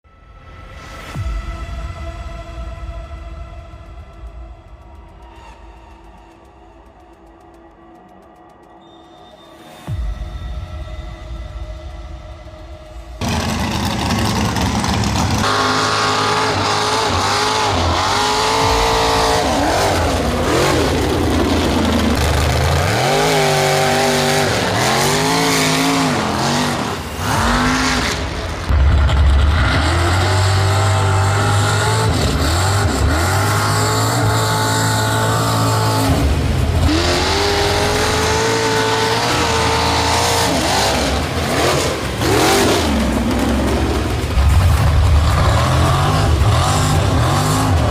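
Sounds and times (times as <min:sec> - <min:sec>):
truck engine revving: 0:13.2 - 0:47.9.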